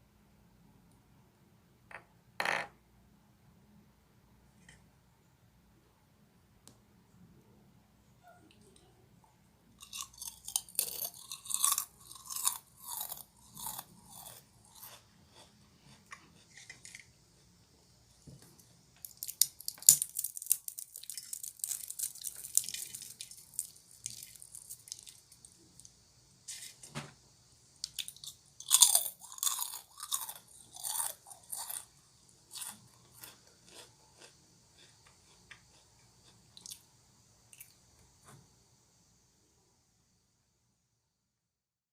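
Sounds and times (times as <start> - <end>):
chewing crunchy snack: 9.8 - 17.5, 18.6 - 25.9, 27.8 - 36.8.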